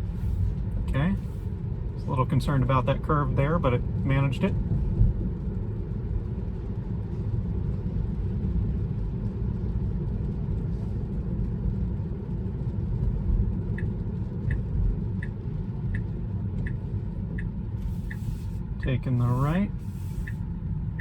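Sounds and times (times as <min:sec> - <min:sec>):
road and tyre rumble: 0:00.0 - 0:21.0
turn signal ticking: 0:13.2 - 0:21.0.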